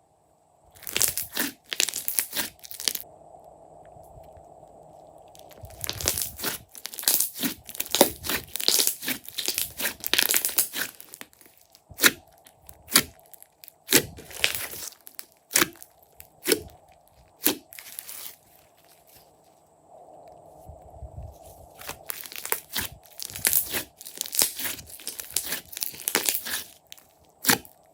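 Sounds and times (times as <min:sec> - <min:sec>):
slime crackling and popping: 0:00.8 - 0:03.0, 0:05.3 - 0:18.4, 0:21.8 - 0:27.9.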